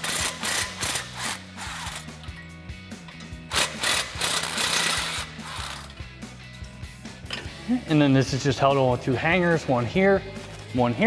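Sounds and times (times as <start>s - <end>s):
impact wrench hammering: 0.0s - 2.1s, 3.5s - 5.9s
background music: 0.0s - 11.0s.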